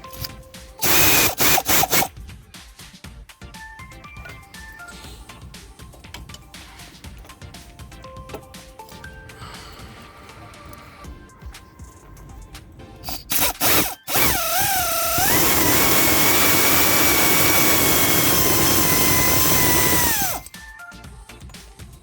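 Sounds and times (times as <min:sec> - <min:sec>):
power tool whining: 0:00.2 - 0:02.1, 0:13.0 - 0:20.5.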